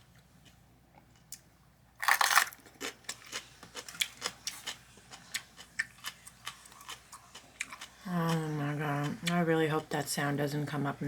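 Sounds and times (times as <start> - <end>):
crunchy sandwich being chewed: 2.0 - 8.0.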